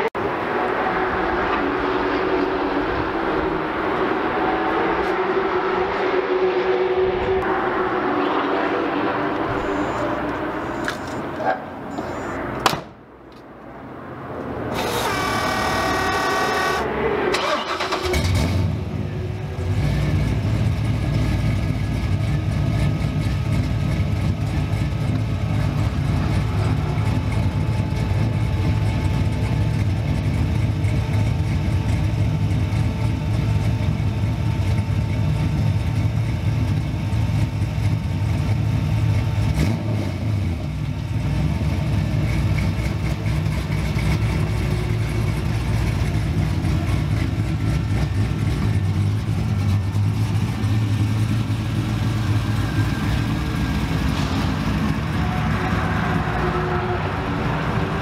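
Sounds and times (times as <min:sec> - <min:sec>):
car engine running: 0:09.3 - 0:12.4, 0:14.7 - 0:56.3
car engine starter cranking: 0:14.7 - 0:18.7.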